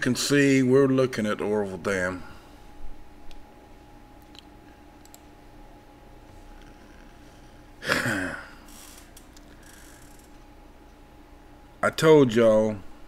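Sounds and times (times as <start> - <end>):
low room hum: 0.0 - 13.0
man sighing: 7.8 - 8.7.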